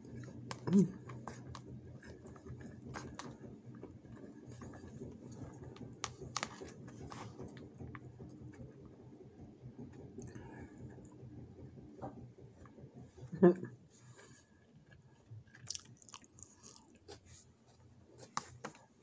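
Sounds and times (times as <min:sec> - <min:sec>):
person chewing food: 0:14.8 - 0:18.9.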